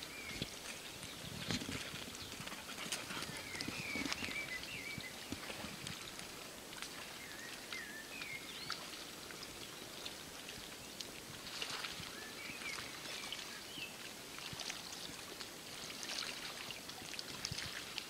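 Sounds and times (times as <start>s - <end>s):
bird chirping: 2.2s - 5.3s.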